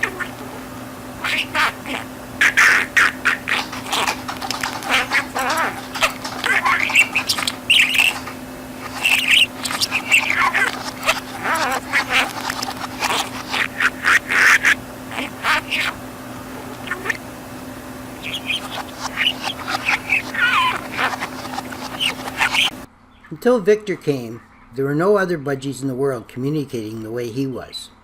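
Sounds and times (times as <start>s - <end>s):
budgerigar chattering and warbling: 0.0s - 17.2s, 18.1s - 22.9s
steady low hum: 0.0s - 23.2s.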